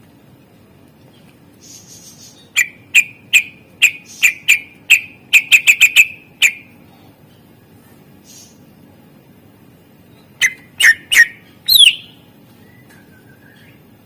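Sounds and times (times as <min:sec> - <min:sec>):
bird calling sharp high notes: 0:10.4 - 0:12.2.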